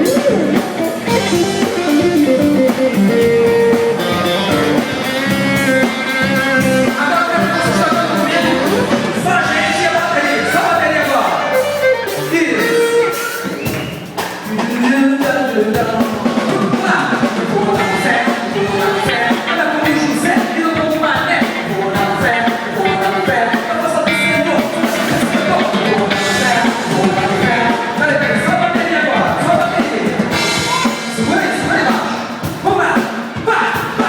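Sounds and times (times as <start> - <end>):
band playing worship music: 0.0 - 34.0
people singing: 3.9 - 11.6, 13.5 - 32.4.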